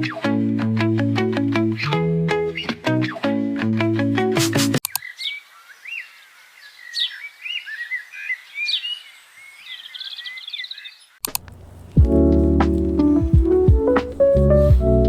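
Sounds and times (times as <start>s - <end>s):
music: 0.0s - 4.8s, 11.9s - 15.0s
birds chirping and trilling: 4.9s - 12.0s.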